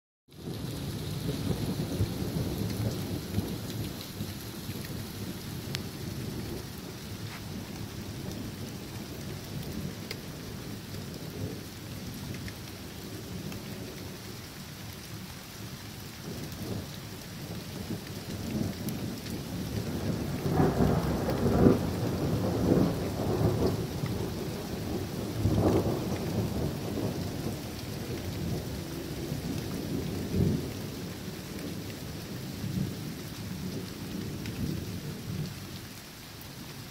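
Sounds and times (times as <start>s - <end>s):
steady rain falling: 0.3s - 36.9s
thunder rumbling: 0.4s - 14.1s, 16.2s - 35.5s.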